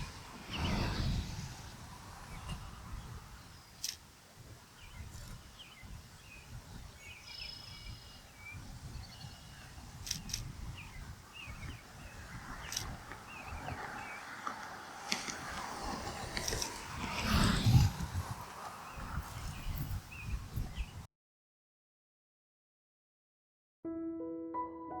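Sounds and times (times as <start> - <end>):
low wind rumble: 0.0 - 21.1
faint bird chirps: 4.8 - 14.2
sharp clicks: 10.0 - 10.5.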